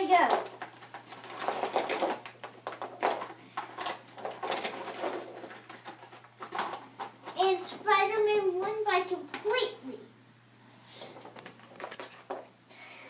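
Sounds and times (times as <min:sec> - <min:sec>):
toy trucks rattling on plastic track: 0:00.0 - 0:07.5.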